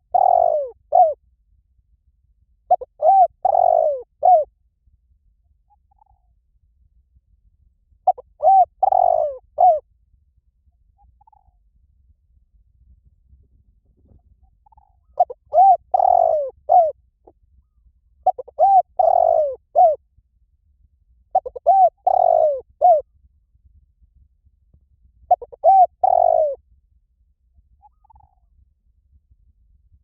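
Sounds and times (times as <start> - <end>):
dove cooing: 0.0 - 1.2, 2.7 - 4.5, 8.1 - 9.8, 14.6 - 17.0, 18.2 - 20.0, 21.3 - 23.0, 25.3 - 26.6.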